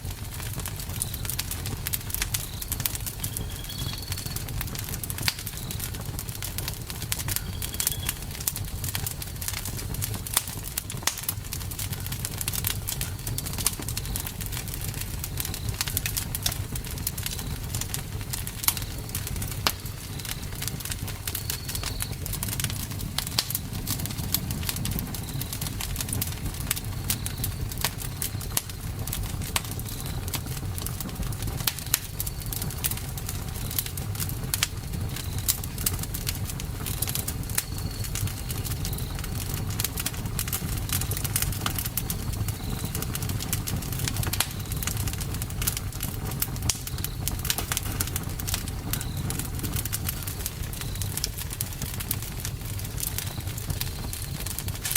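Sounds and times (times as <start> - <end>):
fire crackling and popping: 0.0 - 54.9
low rumble of flames: 0.0 - 54.9.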